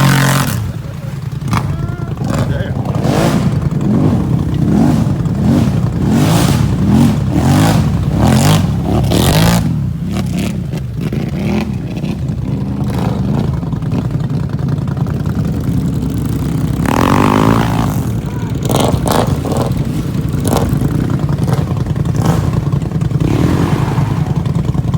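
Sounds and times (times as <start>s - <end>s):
engine revving: 0.0s - 24.9s.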